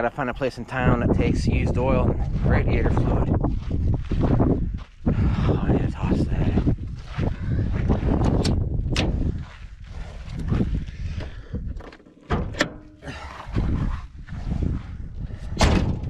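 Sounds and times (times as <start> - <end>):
wind buffeting microphone: 0.0 - 16.0
handling knocks and clicks: 11.2 - 13.5.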